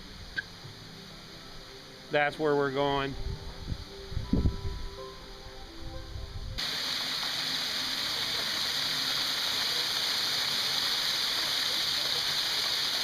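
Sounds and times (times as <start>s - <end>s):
waterfall rushing: 6.6s - 13.0s.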